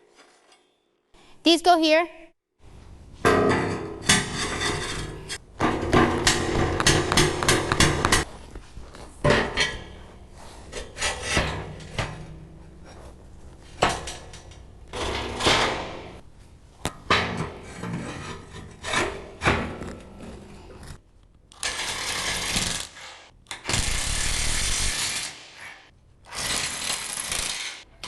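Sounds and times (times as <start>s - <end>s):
metal scraping on metal: 3.4s - 5.4s.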